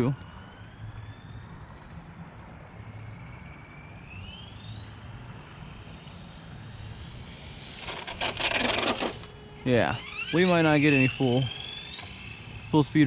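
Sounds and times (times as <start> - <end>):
rc car motor whining: 2.8 - 13.0
tyres rumbling on pavement: 7.8 - 9.4.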